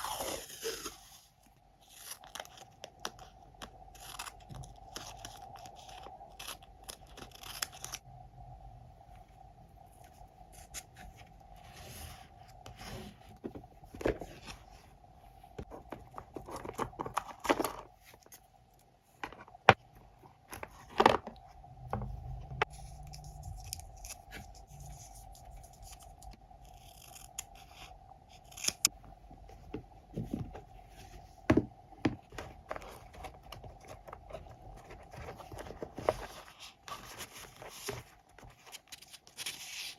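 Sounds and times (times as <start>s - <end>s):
faint steady hum: 0.0s - 39.9s
scissors cutting paper: 25.8s - 28.9s
paper handling: 32.3s - 39.9s.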